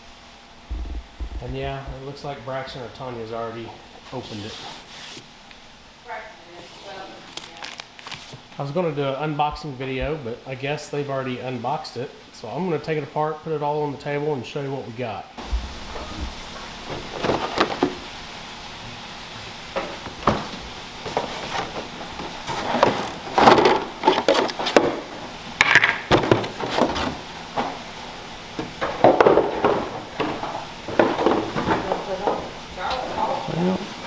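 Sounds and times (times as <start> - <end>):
cardboard packaging rustling: 6.6 - 8.5, 15.4 - 18.3, 19.6 - 32.8.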